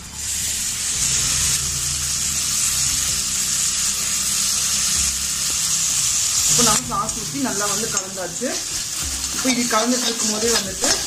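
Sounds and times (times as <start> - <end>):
sauce sizzling in hot oil: 0.0 - 11.0.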